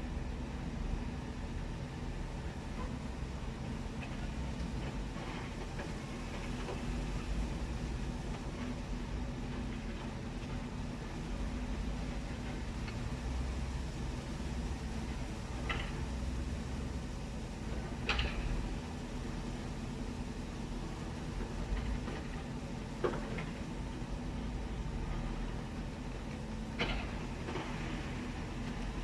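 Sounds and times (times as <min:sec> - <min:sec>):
heavy engine rumbling: 0:00.0 - 0:29.0.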